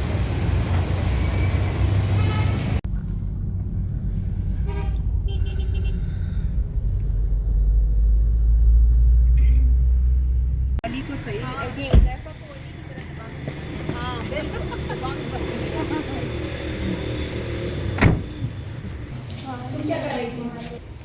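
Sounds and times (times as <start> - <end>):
vehicle rumble in traffic: 0.0 - 21.0
car horns honking: 2.1 - 2.8, 4.6 - 6.3.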